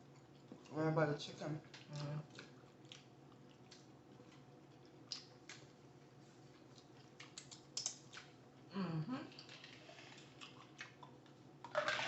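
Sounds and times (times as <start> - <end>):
mouth clicks and smacks eating: 1.7 - 5.7, 6.5 - 8.4, 10.3 - 11.4.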